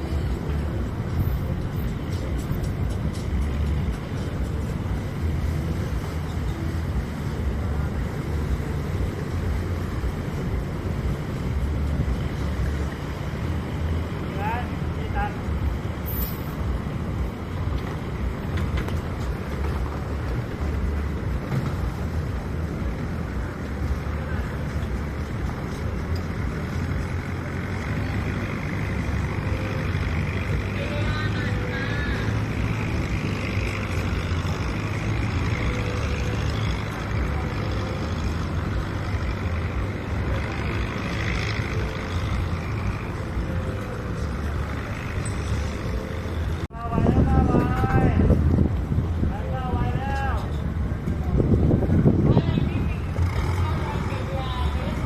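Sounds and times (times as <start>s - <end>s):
boat engine rumbling: 0.0s - 55.0s.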